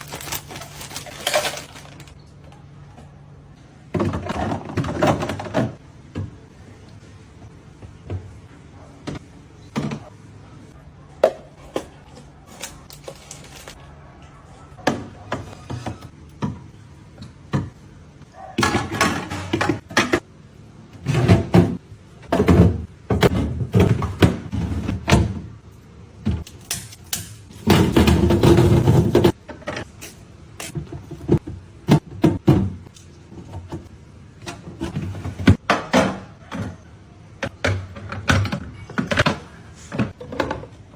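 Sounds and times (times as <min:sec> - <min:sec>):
food containers clattering: 0:00.0 - 0:02.2, 0:11.6 - 0:13.8, 0:26.4 - 0:29.9
packaging rustling: 0:00.0 - 0:02.2, 0:12.5 - 0:13.8.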